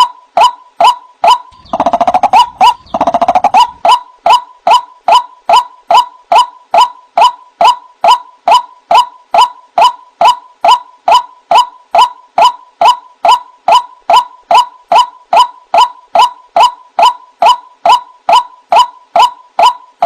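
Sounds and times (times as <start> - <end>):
bird calling sharp notes: 0.0 - 20.0
bird croaking rattles: 1.3 - 9.1.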